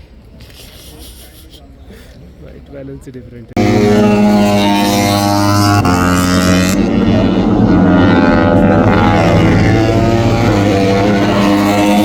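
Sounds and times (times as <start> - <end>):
motorcycle engines at high revs: 3.6 - 12.0.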